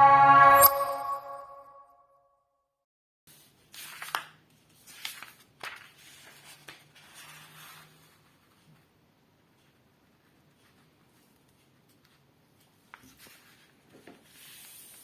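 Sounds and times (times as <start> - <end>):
paper rustling and crinkling: 3.3 - 8.9, 10.5 - 15.0.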